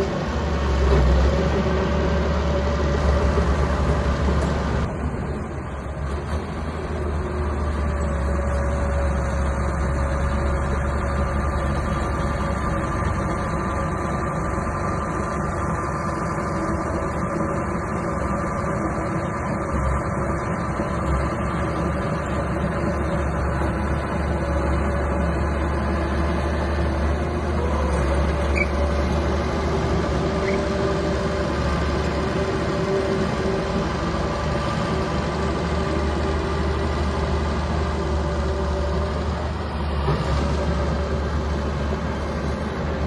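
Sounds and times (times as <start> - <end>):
bulldozer diesel engine running: 0.0 - 43.0.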